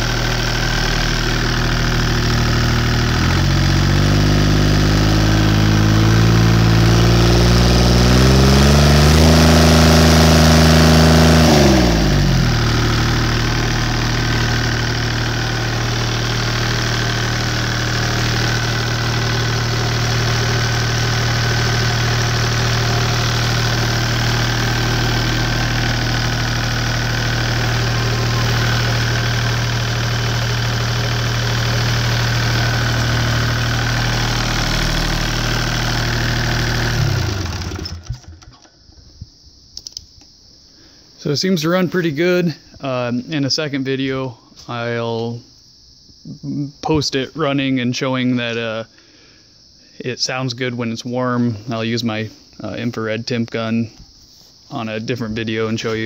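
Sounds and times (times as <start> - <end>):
diesel engine revving and idling: 0.0 - 38.5.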